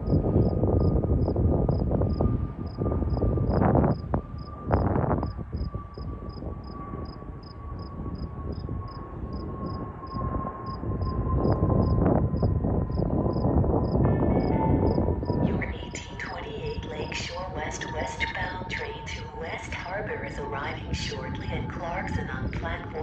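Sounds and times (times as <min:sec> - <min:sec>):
jet airliner flying over: 0:00.0 - 0:23.0.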